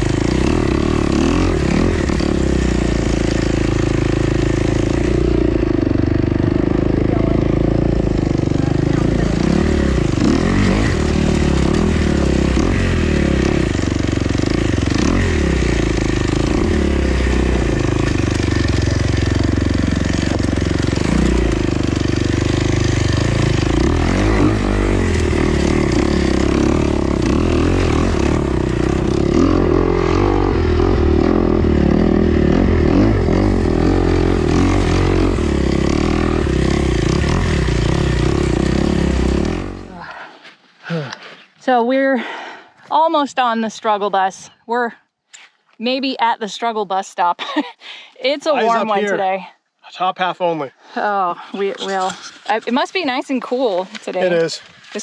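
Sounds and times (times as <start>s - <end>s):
dirt bike engine revving: 0.0s - 40.1s.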